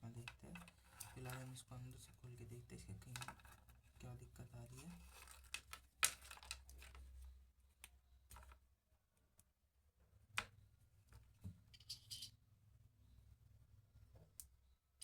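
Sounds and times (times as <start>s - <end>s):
scratchy rustle: 4.6s - 5.8s.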